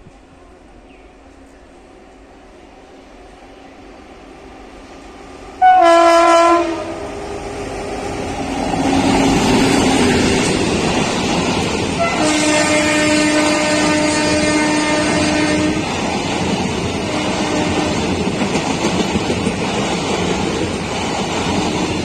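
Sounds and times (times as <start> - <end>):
approaching train noise: 0.0 - 22.0
locomotive horn blasts: 5.6 - 7.1, 12.0 - 15.8.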